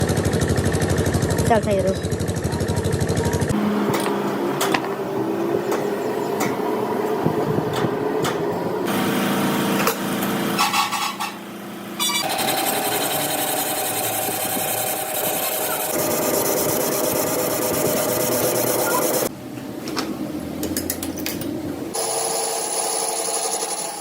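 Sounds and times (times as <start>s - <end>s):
machine hum: 0.0s - 10.7s, 11.6s - 19.4s.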